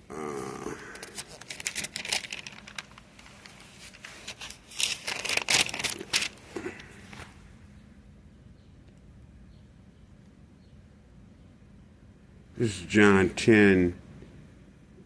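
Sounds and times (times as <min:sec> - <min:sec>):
paper pages flipping: 0:00.9 - 0:07.4.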